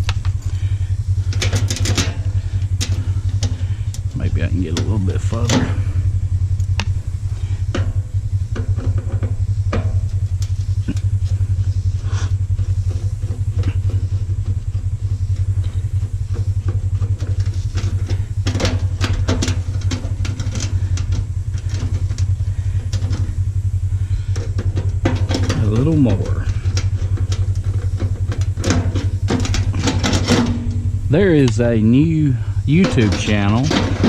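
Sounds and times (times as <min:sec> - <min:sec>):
loud low drone: 0:00.0 - 0:34.0.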